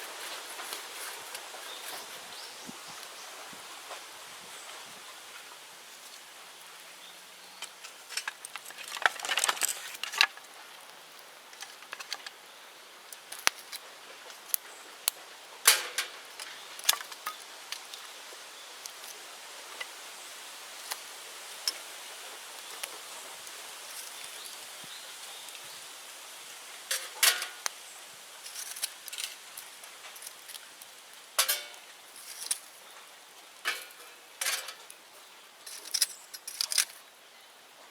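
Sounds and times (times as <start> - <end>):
bonfire crackling: 5.2 - 37.0
sharp snaps of burning bamboo: 13.1 - 18.2, 18.8 - 20.0, 20.7 - 22.0, 26.9 - 27.8, 28.4 - 32.8.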